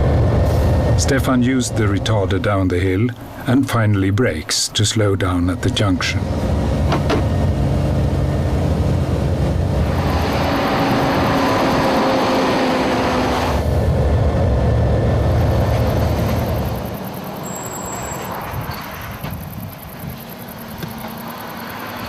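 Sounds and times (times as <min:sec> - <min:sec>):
truck engine humming: 0:00.0 - 0:22.0
rushing noise with falling tone: 0:07.7 - 0:22.0.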